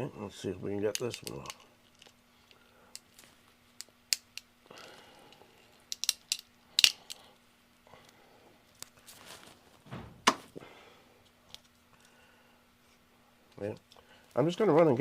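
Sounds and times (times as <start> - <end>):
faint steady hum: 0.0 - 15.0
plastic clicks and snaps: 0.9 - 2.2, 5.9 - 7.2.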